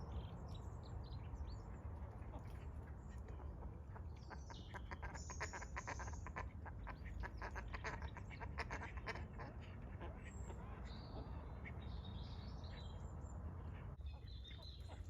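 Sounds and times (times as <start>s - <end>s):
ducks quacking: 2.1s - 12.1s.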